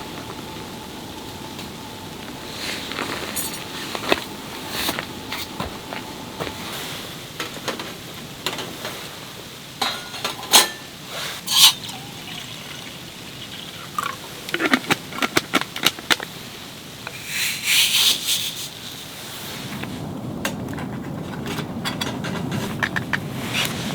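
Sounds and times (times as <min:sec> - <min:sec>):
utensils and dishes clicking: 0:09.8 - 0:10.9, 0:11.5 - 0:12.4, 0:13.8 - 0:16.3
liquid being poured: 0:11.5 - 0:15.2.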